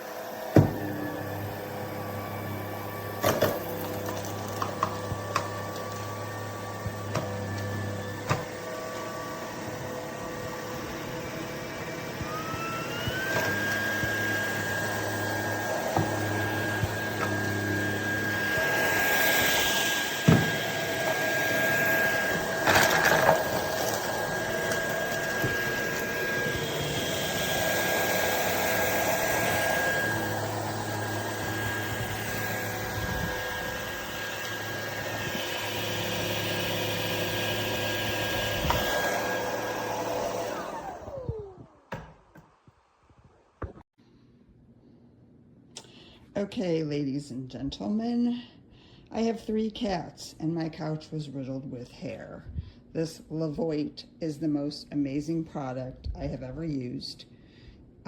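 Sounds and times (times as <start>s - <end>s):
vacuum motor whine: 0.0s - 42.1s.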